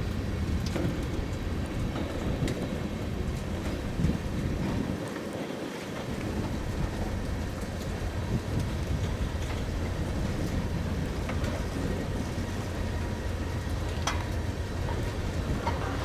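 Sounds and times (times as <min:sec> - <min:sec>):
freight train cars rumbling: 0:00.0 - 0:16.0
wind buffeting microphone: 0:00.0 - 0:16.0.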